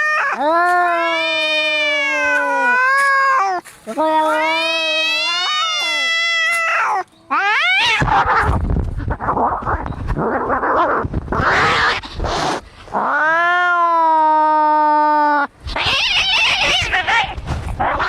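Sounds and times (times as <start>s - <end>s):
cat yowling: 0.0s - 8.6s, 13.0s - 18.0s
cats hissing and growling: 0.0s - 18.0s.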